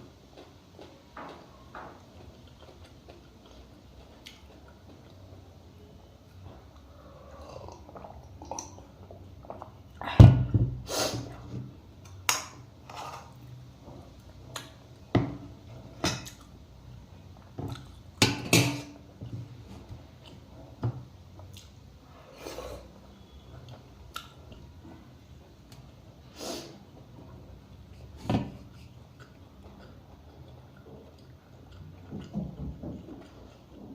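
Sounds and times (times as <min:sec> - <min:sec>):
chewing and mouth noises: 0:00.3 - 0:05.5, 0:06.2 - 0:10.1, 0:16.2 - 0:18.2, 0:28.7 - 0:33.9
dishes clinking: 0:18.2 - 0:19.0.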